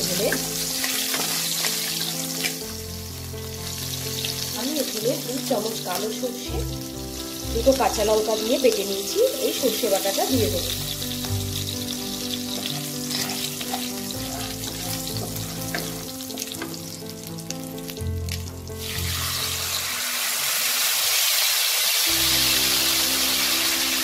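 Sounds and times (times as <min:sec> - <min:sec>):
oil sizzling and crackling: 0:00.0 - 0:24.0
spatula stirring: 0:12.4 - 0:16.8.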